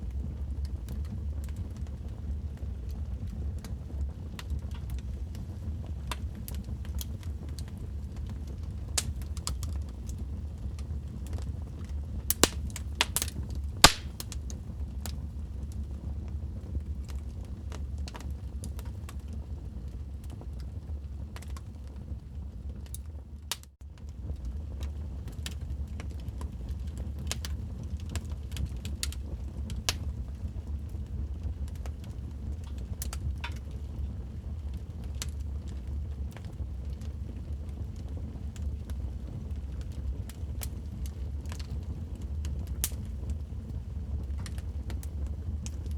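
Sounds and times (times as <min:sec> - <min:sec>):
low rumble of burning fire: 0:00.0 - 0:45.9
wood fire crackling and popping: 0:00.0 - 0:45.9
fire snapping: 0:04.4 - 0:15.2, 0:22.9 - 0:30.9, 0:31.6 - 0:33.9, 0:34.7 - 0:37.5, 0:39.8 - 0:43.4, 0:44.2 - 0:45.0.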